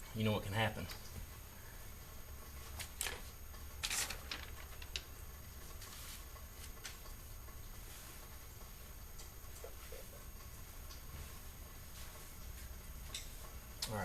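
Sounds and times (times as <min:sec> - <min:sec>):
light rustling of plastic: 0:02.7 - 0:05.1.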